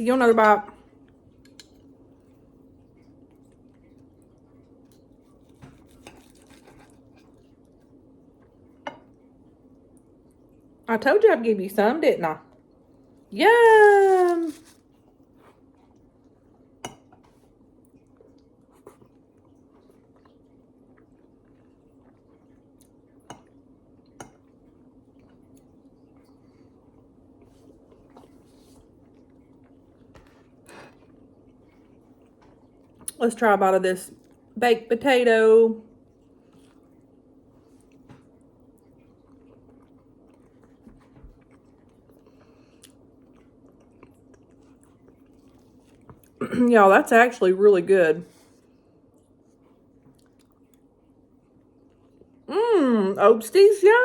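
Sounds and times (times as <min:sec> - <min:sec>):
low steady hum: 0:00.0 - 0:54.0
person chewing food: 0:00.8 - 0:10.8, 0:14.5 - 0:33.2, 0:35.9 - 0:46.4, 0:48.3 - 0:52.5.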